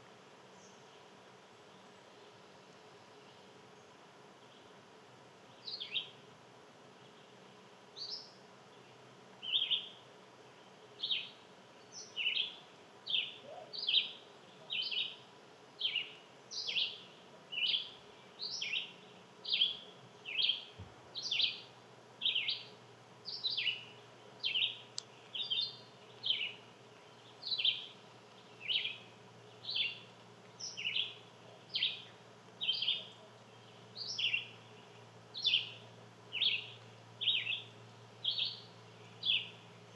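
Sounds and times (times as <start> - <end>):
bird calling: 13.2 - 15.0.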